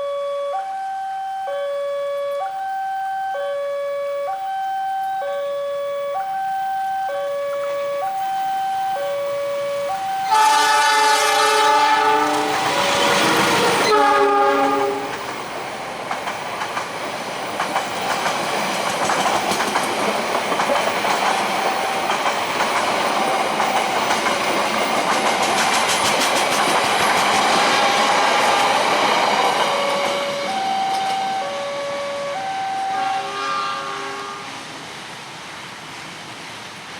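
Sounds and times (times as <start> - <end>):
level crossing alarm two-note tone: 0.0 - 10.7, 29.6 - 33.4
train horn blasting: 10.2 - 15.2, 29.6 - 34.7
train wheels clattering on rails: 10.4 - 31.3.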